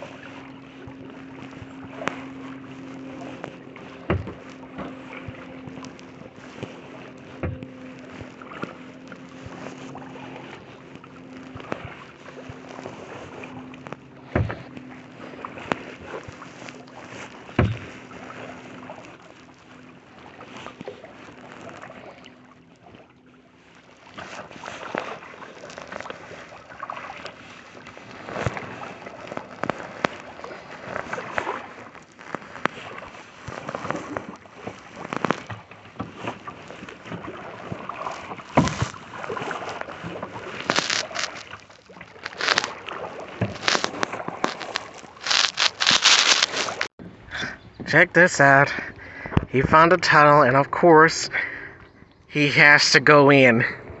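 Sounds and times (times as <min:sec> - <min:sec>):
paddle splashing in water: 0:00.0 - 0:46.9
paddle knocking on hull: 0:00.9 - 0:19.2, 0:35.3 - 0:41.3.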